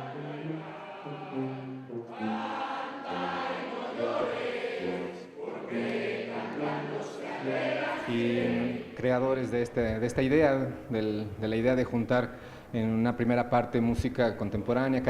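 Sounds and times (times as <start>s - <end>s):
live ensemble music: 0.0s - 4.2s.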